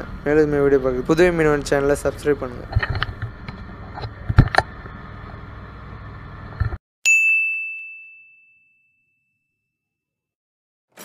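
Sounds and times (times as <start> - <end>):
bright bell ding: 7.1 - 9.7.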